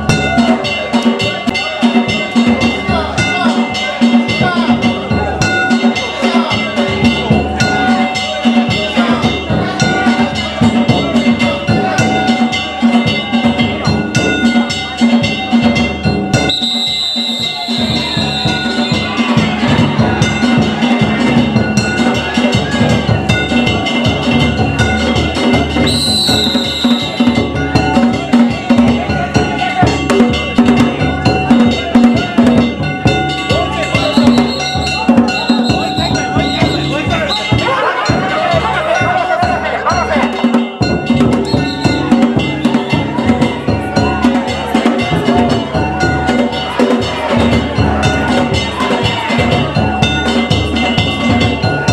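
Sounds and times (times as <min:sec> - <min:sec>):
ringing gongs: 0:00.0 - 0:51.9
taiko drums: 0:00.0 - 0:51.9
high steady tone: 0:16.5 - 0:19.3, 0:25.9 - 0:27.7, 0:33.2 - 0:38.4, 0:40.8 - 0:42.8.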